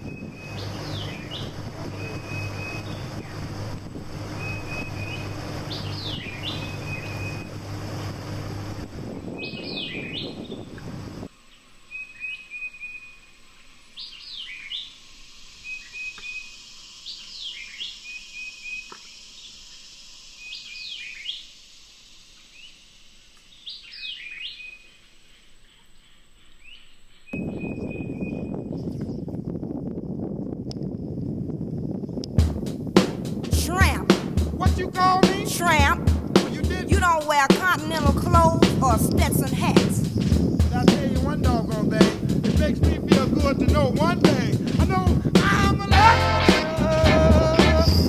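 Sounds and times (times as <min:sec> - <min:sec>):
bird whistling calls: 0:00.0 - 0:07.6, 0:09.3 - 0:10.7, 0:11.9 - 0:13.2, 0:15.6 - 0:19.5, 0:20.4 - 0:21.5, 0:23.6 - 0:25.0, 0:26.5 - 0:29.0
loud rushing noise: 0:00.0 - 0:09.6, 0:32.4 - 0:48.0
low hum: 0:00.0 - 0:09.8, 0:32.0 - 0:48.0
wind noise: 0:00.0 - 0:11.3, 0:27.3 - 0:48.0.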